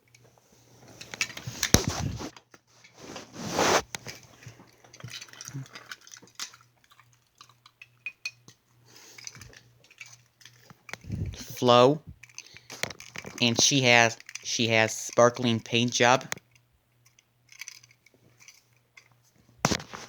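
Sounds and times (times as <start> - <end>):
metal toy cars clinking: 4.9 - 11.6, 12.2 - 19.2.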